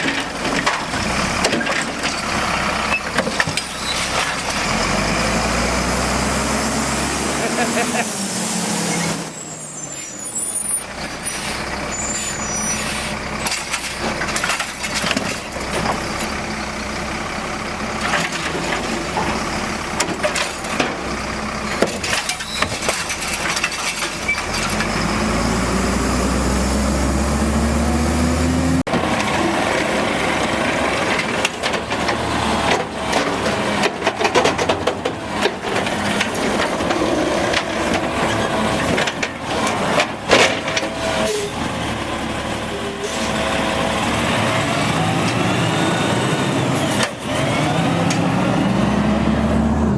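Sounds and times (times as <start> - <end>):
garbage truck engine revving: 0.0 - 49.9
knocks and clanks: 30.7 - 41.1.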